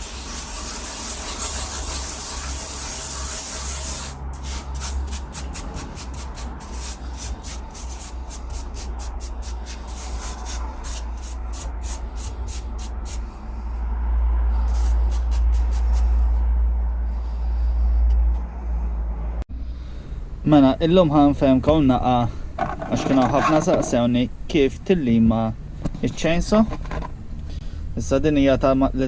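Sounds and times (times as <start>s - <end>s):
quick rasping strokes: 0.0s - 19.1s
low rumble: 4.2s - 23.0s.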